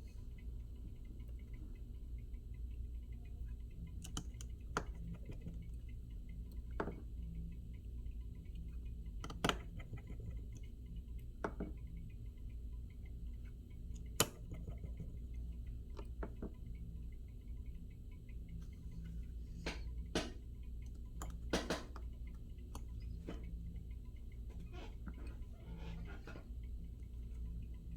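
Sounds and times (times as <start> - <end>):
small tools clicking and tapping: 3.8 - 7.2, 8.5 - 11.9, 13.4 - 15.3, 15.9 - 16.7, 18.6 - 27.9.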